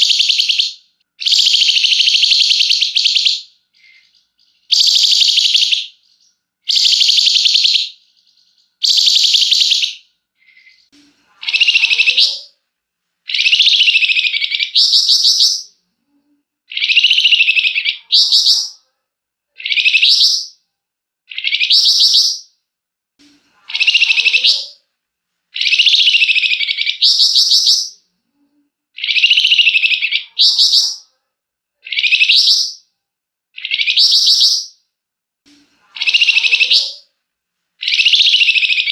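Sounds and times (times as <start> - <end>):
songbird singing harsh buzzy song: 25.6 - 28.0, 33.6 - 34.8.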